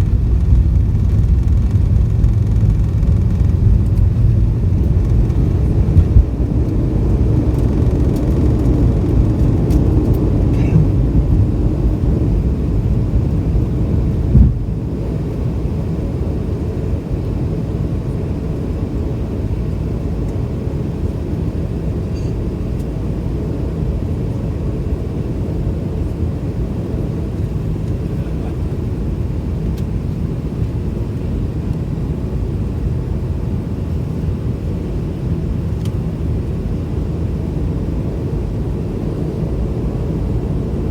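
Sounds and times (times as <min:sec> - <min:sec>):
jet engines rumbling in cabin: 0:00.0 - 0:40.9
thump: 0:14.3 - 0:14.6.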